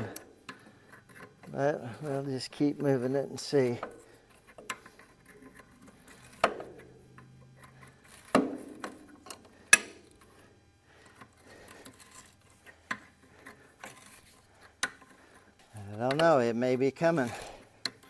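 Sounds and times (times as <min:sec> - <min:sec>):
wrench clicking on metal bolt: 0:16.0 - 0:16.3.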